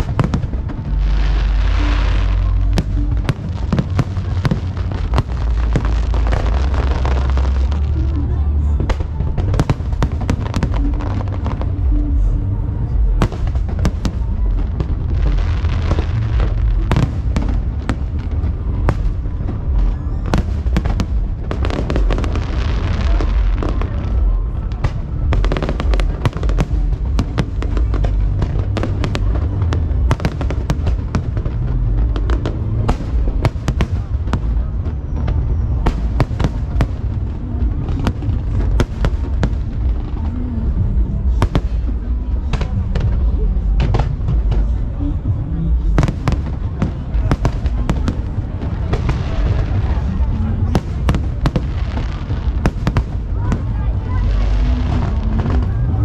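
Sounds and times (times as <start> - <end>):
firework hissing and crackling: 0.0 - 8.0
firework bangs and crackles: 0.0 - 56.0.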